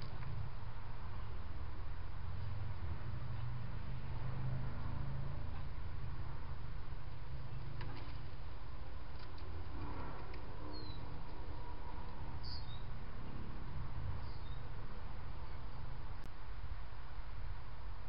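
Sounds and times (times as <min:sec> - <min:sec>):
bird chirping: 0:10.6 - 0:13.5, 0:14.1 - 0:16.0.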